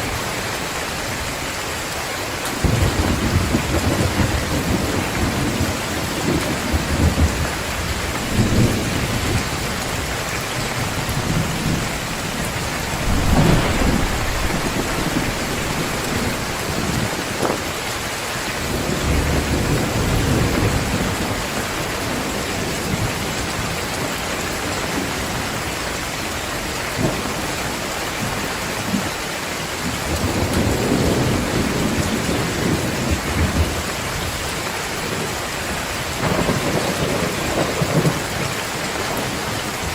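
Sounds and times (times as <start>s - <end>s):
heavy rain hissing: 0.0s - 24.3s
thunder rolling: 2.6s - 21.3s.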